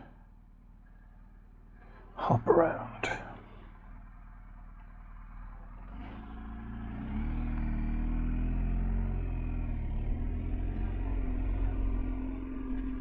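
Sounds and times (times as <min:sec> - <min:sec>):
road and wind rumble: 0:02.4 - 0:13.0
motorcycle engine accelerating: 0:04.2 - 0:13.0.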